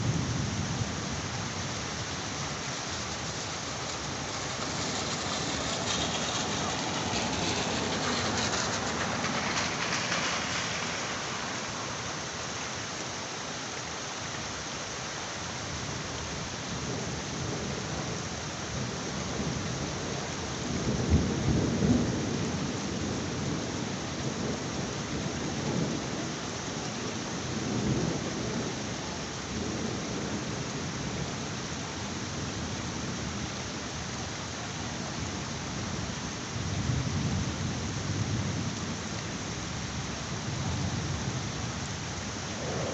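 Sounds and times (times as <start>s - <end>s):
heavy rain falling: 0.0s - 42.9s
rolling thunder: 2.5s - 12.6s, 16.8s - 26.3s, 40.4s - 42.9s.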